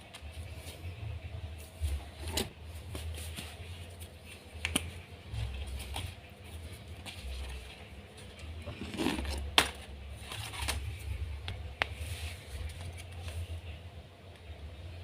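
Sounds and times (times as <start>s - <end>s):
low steady hum: 0.0s - 15.0s
paper rustling and creasing: 5.2s - 13.8s.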